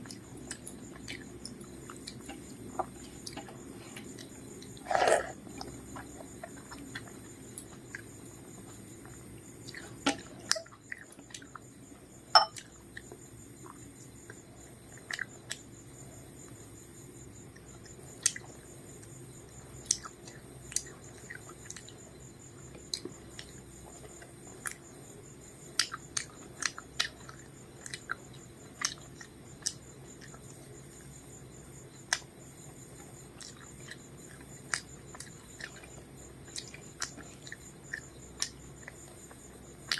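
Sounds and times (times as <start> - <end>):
person chewing food: 0.0 - 11.7, 19.8 - 22.0, 25.8 - 30.6, 33.0 - 39.9.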